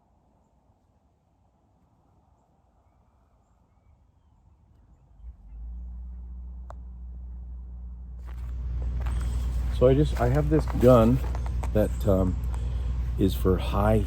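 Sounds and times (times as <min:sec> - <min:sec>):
faint birds chirping: 0:00.0 - 0:14.0
steady low hum: 0:04.4 - 0:14.0.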